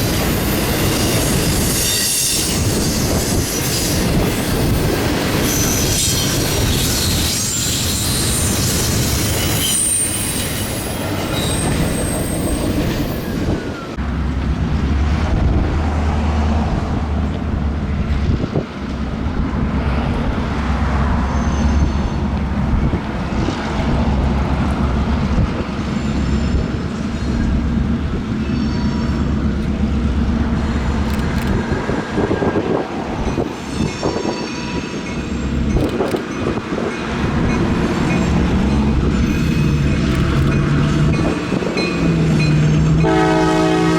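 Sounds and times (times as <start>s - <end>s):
high wheel squeals: 0.0s - 14.0s, 21.2s - 22.3s, 28.3s - 29.5s, 33.4s - 35.8s, 39.1s - 40.1s
train cars clanking and rattling: 0.0s - 43.5s
rail cars rumbling on track: 0.0s - 43.9s.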